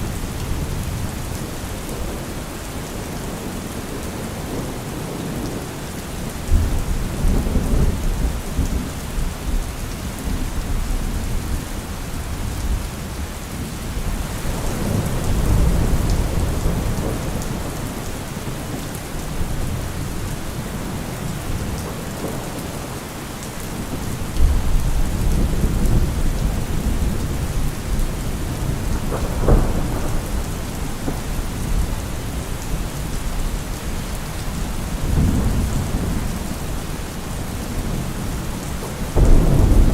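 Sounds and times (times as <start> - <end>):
steady rain: 0.0 - 39.9
rolling thunder: 13.9 - 22.9, 23.7 - 39.9
sharp thunderclap: 28.4 - 31.8, 39.1 - 39.9.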